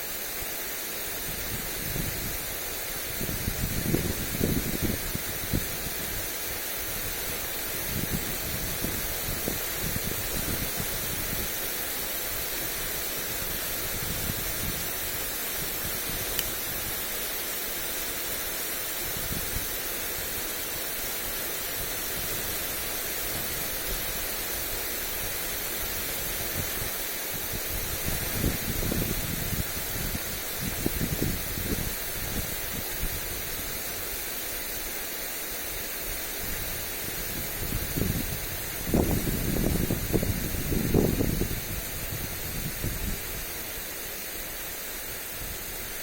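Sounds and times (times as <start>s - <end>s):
sprinkler spraying water: 0.0s - 46.0s
wind buffeting microphone: 3.1s - 6.2s, 26.0s - 33.7s, 36.4s - 43.6s.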